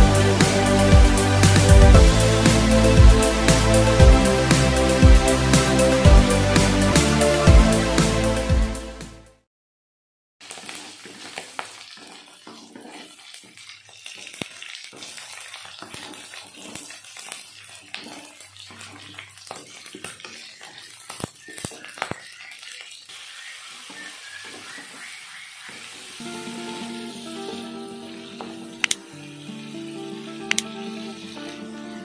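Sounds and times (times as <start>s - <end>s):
shrimp sizzling with pops: 0.0s - 8.2s, 10.4s - 32.0s
spatula scraping pan: 10.7s - 21.7s.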